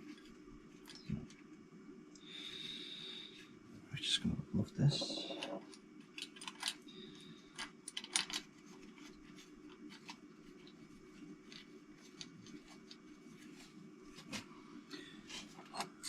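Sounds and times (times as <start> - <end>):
steady low hum: 0.0 - 16.0
small metal parts clicking: 5.0 - 6.8, 7.5 - 8.5.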